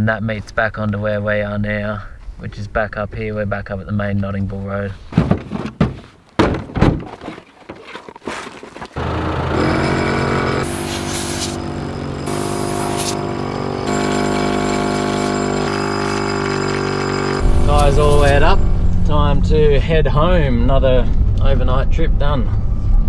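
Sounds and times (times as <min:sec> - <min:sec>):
sharp knocks and thuds: 0:05.0 - 0:08.4.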